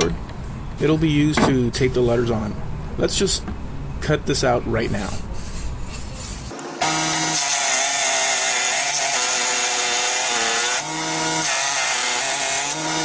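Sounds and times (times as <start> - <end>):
power saw cutting wood: 6.5 - 13.0.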